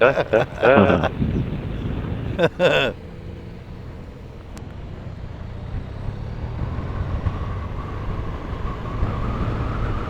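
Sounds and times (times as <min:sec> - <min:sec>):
road and wind noise: 0:00.0 - 0:10.0
motorcycle engine running: 0:01.0 - 0:06.2.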